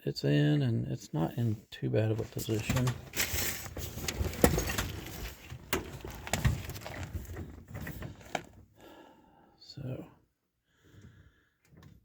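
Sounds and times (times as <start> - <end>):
metal parts clinking: 2.4 - 8.0.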